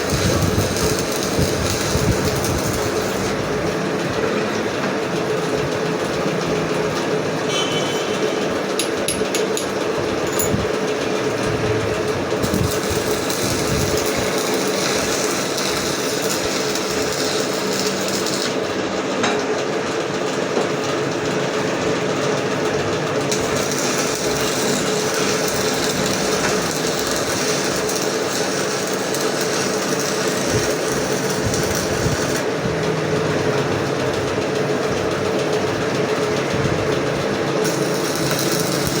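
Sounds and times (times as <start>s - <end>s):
arc welding hiss: 0.0s - 3.6s, 12.4s - 18.7s, 23.3s - 32.5s, 37.6s - 39.0s
constant hum: 7.4s - 18.5s.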